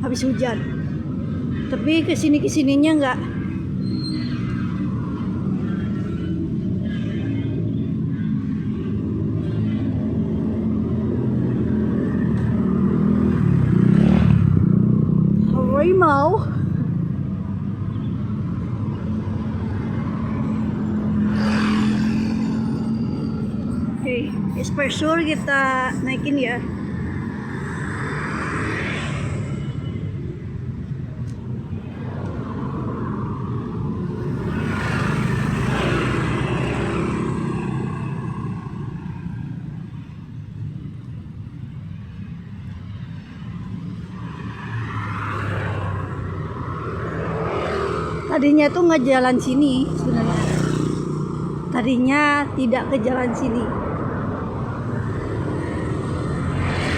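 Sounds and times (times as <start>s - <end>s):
vehicle engines humming: 0.0s - 56.9s
vehicle passing close by: 20.1s - 29.9s, 32.0s - 39.2s, 49.4s - 56.9s.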